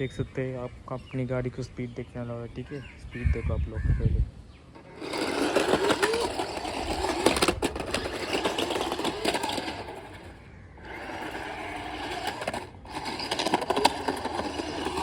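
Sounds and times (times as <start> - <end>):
toy car electric motor whining: 4.7 - 15.0.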